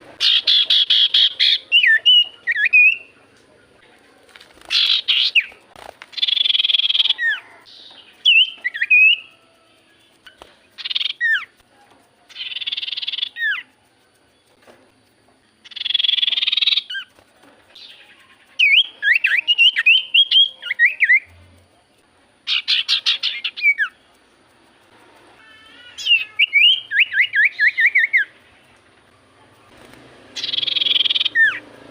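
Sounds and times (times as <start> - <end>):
bird chattering: 0.0 - 4.0, 4.6 - 14.6, 15.5 - 21.3, 22.4 - 28.9, 30.3 - 31.7
bird whistled notes: 6.2 - 9.6, 12.3 - 13.7, 15.7 - 17.1, 17.8 - 21.3, 26.0 - 28.3, 30.4 - 31.6.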